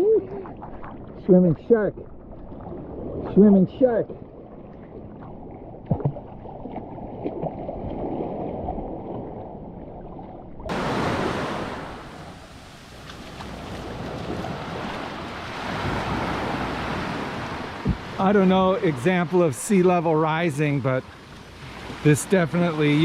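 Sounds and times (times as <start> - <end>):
sea waves washing on shore: 10.7 - 23.0
wind on microphone: 13.6 - 18.2.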